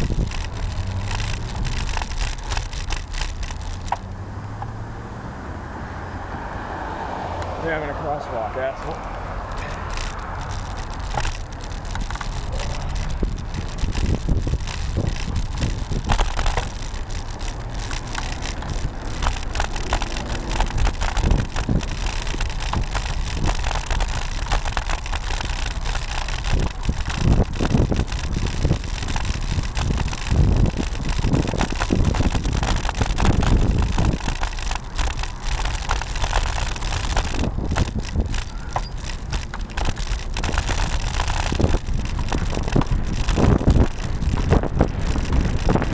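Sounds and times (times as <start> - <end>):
wind rumbling on microphone: 0.0 - 45.9
camera mount rattling: 9.5 - 45.9.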